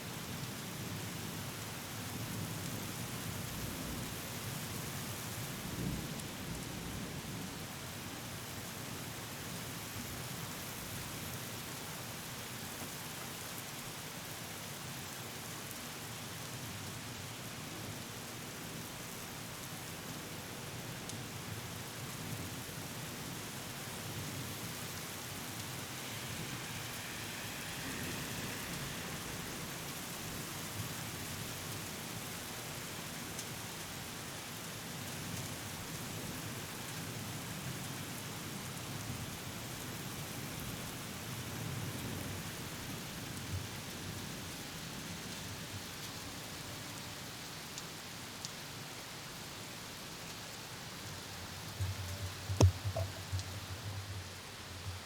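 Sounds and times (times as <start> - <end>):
steady rain falling: 0.0 - 55.0
thunder rumbling: 24.6 - 31.4.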